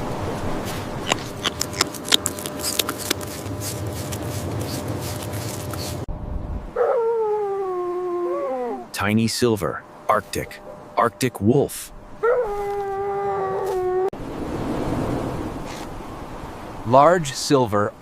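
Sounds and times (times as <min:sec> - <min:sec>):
clicks and rustles: 0:01.0 - 0:06.0
animal howling: 0:06.8 - 0:08.9, 0:12.2 - 0:14.1.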